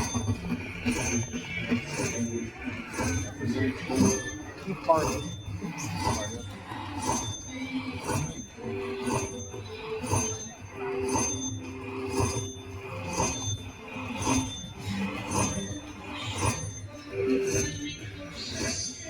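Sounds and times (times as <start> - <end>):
slot machine bell dings: 7.0 - 19.0.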